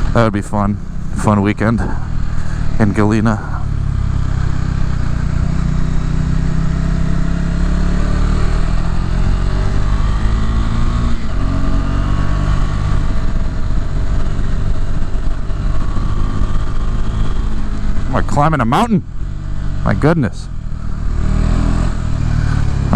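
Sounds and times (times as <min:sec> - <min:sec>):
motorcycle engine pulling hard: 0:00.0 - 0:22.9.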